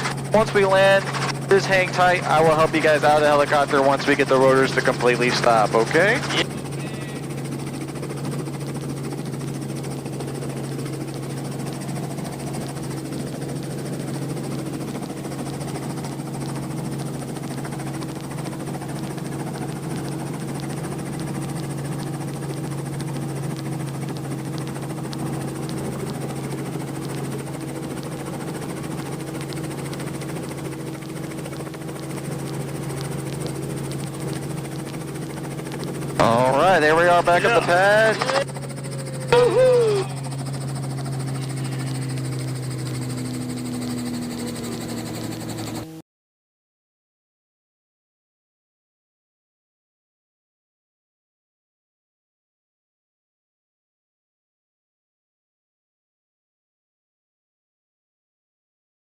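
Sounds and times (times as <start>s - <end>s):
helicopter engine and rotor: 0.0s - 46.0s.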